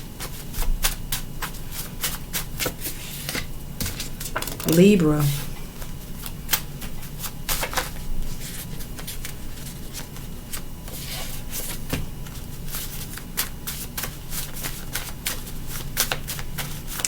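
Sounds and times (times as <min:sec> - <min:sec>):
cards being shuffled: 0:06.5 - 0:17.0.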